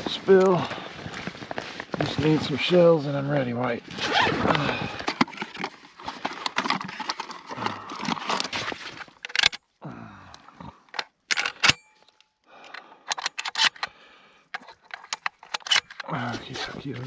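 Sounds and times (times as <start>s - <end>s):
clothing rustling: 0.0s - 9.2s
sharp clicks and rattles: 4.9s - 9.6s, 10.9s - 17.0s.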